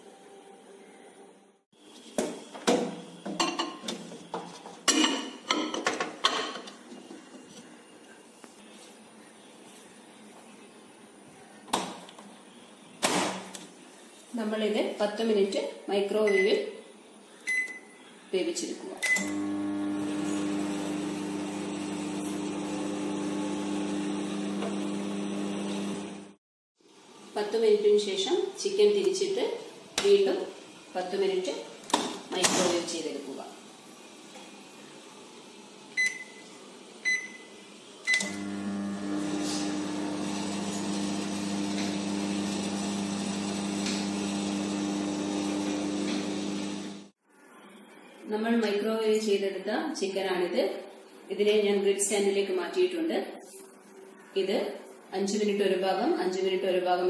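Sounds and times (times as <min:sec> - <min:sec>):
microwave oven humming: 0:19.2 - 0:26.4, 0:38.1 - 0:47.1.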